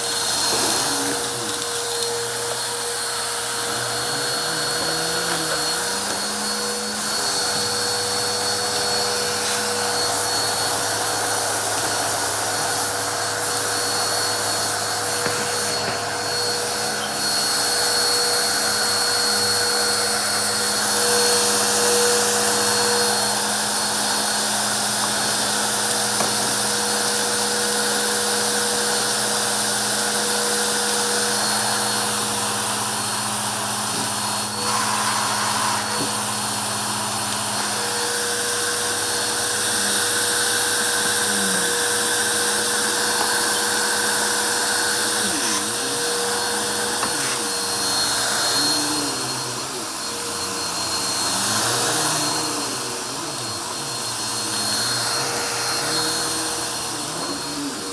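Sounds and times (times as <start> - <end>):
vacuum cleaner running: 0.0 - 57.9.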